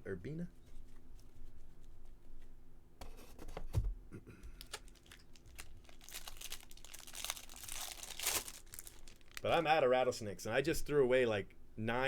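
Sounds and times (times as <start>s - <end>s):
foil wrapper crinkling and tearing: 4.6s - 9.6s.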